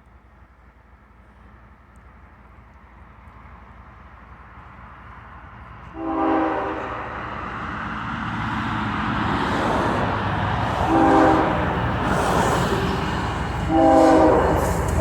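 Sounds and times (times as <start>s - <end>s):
locomotive horn blasts: 5.9s - 7.0s, 10.8s - 11.7s, 13.6s - 15.0s
locomotive engine: 8.4s - 15.0s
wheels on rails: 11.6s - 15.0s.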